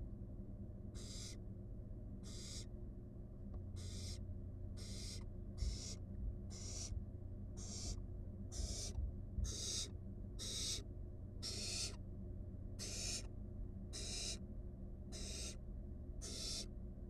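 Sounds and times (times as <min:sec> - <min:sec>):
low electrical hum: 0:00.0 - 0:17.0
owl nestling hissing: 0:01.0 - 0:01.4, 0:02.2 - 0:02.6, 0:04.8 - 0:06.9, 0:07.6 - 0:08.9, 0:09.5 - 0:10.8, 0:11.4 - 0:12.0, 0:12.8 - 0:13.3, 0:14.0 - 0:14.4, 0:15.2 - 0:15.6, 0:16.2 - 0:16.6.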